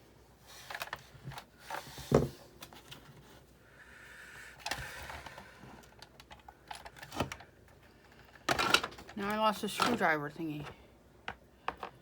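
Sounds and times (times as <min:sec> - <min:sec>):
plastic parts clicking and knocking: 0:04.6 - 0:10.0, 0:10.6 - 0:12.0.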